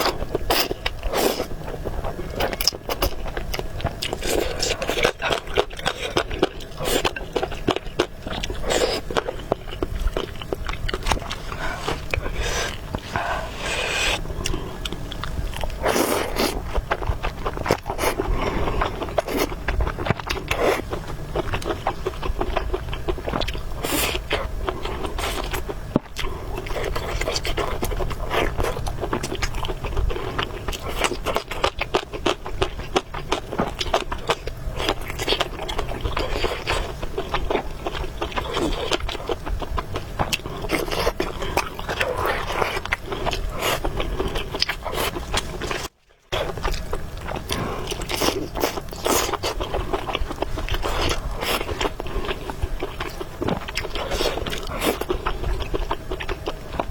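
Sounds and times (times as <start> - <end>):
chewing and slurping noodles: 0.0 - 56.9.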